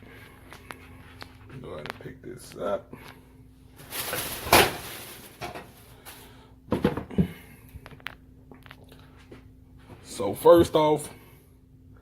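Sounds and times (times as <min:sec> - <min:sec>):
box rustling: 0:03.8 - 0:05.8.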